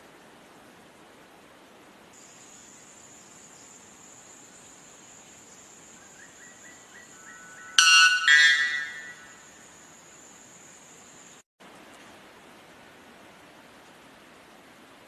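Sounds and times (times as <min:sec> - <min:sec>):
bird calling: 0:06.1 - 0:09.6
high-pitched insect drone: 0:07.2 - 0:11.0.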